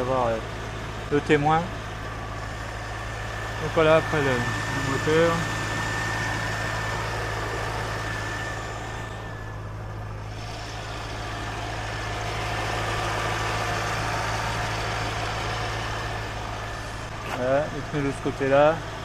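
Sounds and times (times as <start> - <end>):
car engine idling: 0.0 - 19.0
thin high whine: 3.2 - 11.4.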